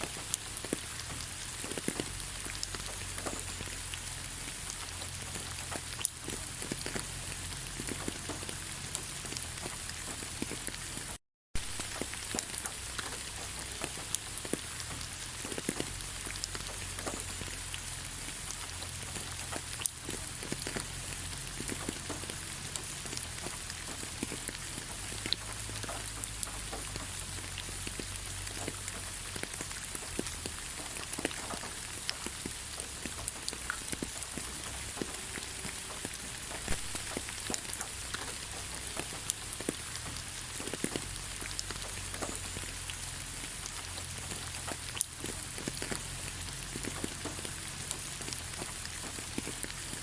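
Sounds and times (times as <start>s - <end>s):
rain falling on a forest: 0.0s - 50.0s.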